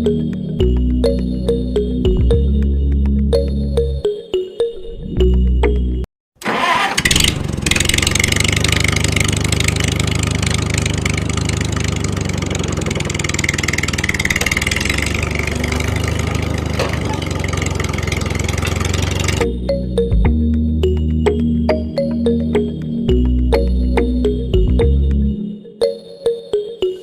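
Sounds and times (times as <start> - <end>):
small motor rattling: 6.6 - 19.4.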